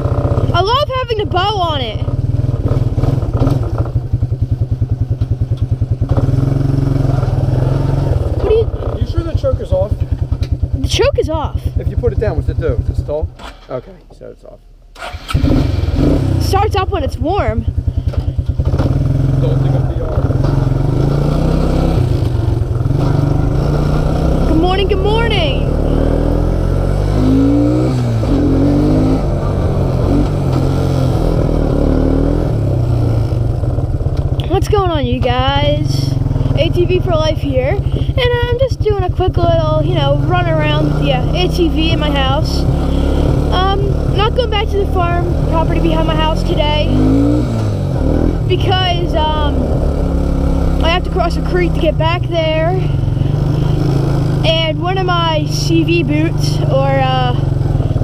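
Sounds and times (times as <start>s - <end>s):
atv engine idling: 0.0s - 14.0s, 15.0s - 58.0s.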